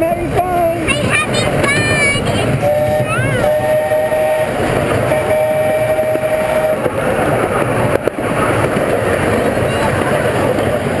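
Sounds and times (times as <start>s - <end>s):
train running rumble: 0.0s - 11.0s
train whistle blasts: 2.6s - 6.9s.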